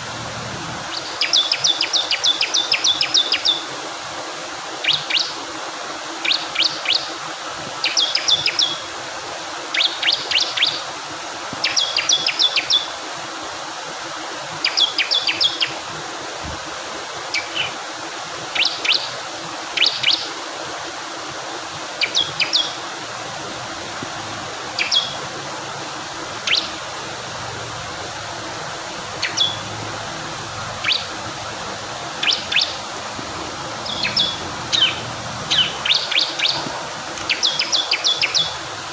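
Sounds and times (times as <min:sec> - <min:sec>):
flowing water rushing: 0:00.0 - 0:38.9
bird singing sharp high chips: 0:24.8 - 0:25.2, 0:26.4 - 0:26.8, 0:29.2 - 0:29.7, 0:32.2 - 0:32.8, 0:33.8 - 0:38.6.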